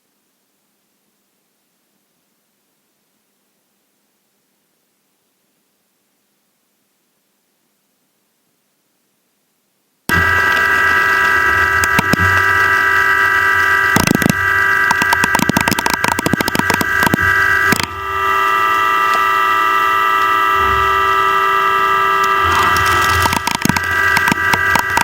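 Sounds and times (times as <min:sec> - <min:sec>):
milling machine high-pitched whine: 0:10.1 - 0:25.0
machine rapid clattering: 0:22.4 - 0:25.0.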